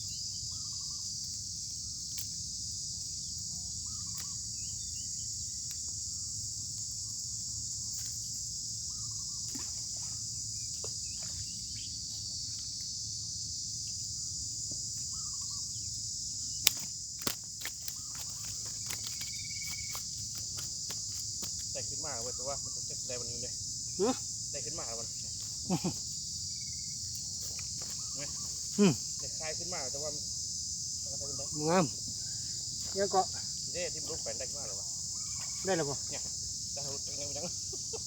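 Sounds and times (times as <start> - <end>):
insects chorus: 0.0 - 38.0
faint chirps: 3.3 - 5.8, 14.9 - 16.7, 17.8 - 20.0, 21.7 - 30.2, 31.0 - 36.2.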